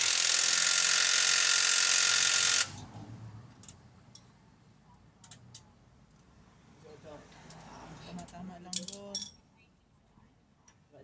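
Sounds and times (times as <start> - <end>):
power tool whirring: 0.0 - 2.8.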